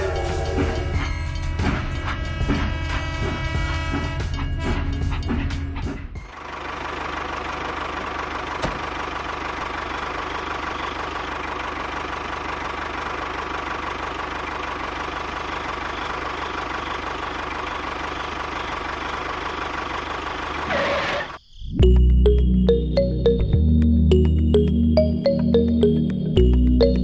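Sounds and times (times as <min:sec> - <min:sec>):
small engine idling: 0:06.2 - 0:21.4.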